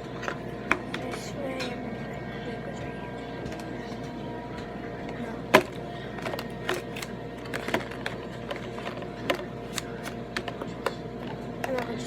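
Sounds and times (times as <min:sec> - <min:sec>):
faint background music: 0:00.0 - 0:12.0
plastic containers knocking and clicking: 0:05.6 - 0:11.0.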